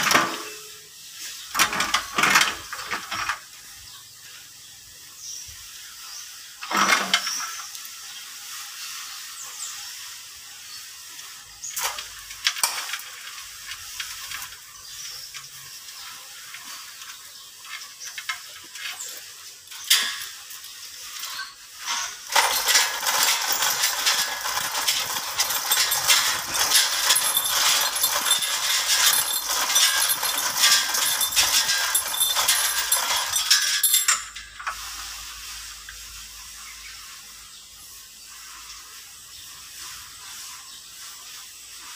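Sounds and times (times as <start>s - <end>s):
hoist chains rattling: 21.1s - 34.8s
metal clinks: 21.2s - 34.8s.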